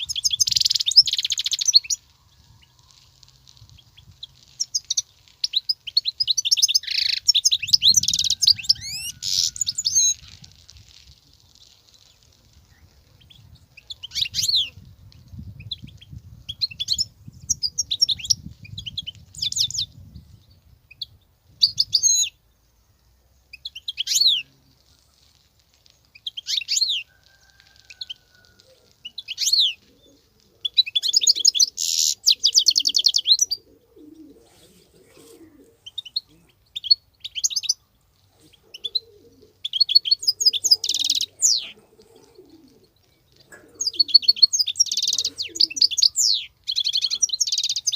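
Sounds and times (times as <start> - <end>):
goldfinch twittering song: 43.8 - 47.9.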